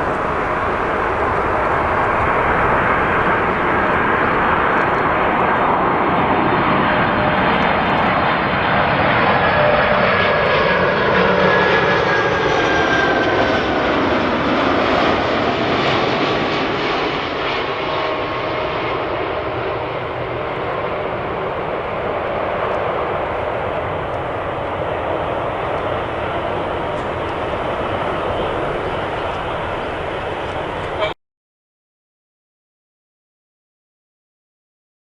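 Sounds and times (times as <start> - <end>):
jet airliner passing: 0.0 - 31.2.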